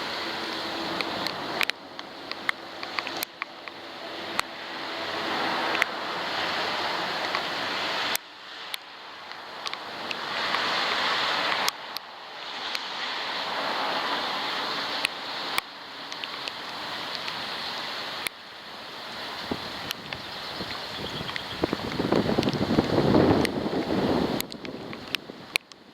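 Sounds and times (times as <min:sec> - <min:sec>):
rain and wind hissing: 0:00.0 - 0:25.9
raindrops striking camera: 0:00.0 - 0:25.9.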